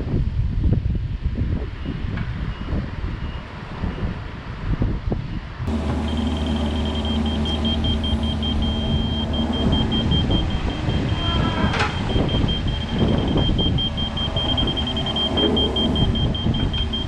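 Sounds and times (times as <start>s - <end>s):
construction machine engine running: 5.7s - 17.0s
high electronic beeping: 5.7s - 17.0s.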